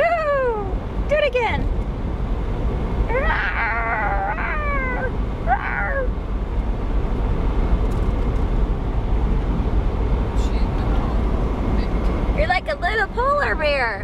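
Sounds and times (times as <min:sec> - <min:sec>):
car rumble: 0:00.0 - 0:14.0
puppy whining: 0:03.2 - 0:06.1.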